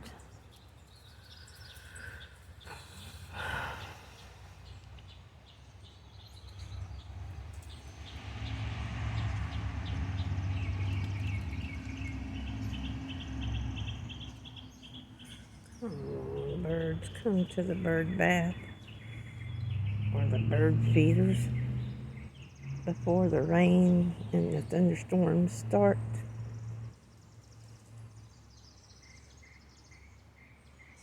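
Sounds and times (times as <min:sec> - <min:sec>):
small birds chirping: 0:00.0 - 0:31.0
vehicle passing with low rumble: 0:03.4 - 0:31.0.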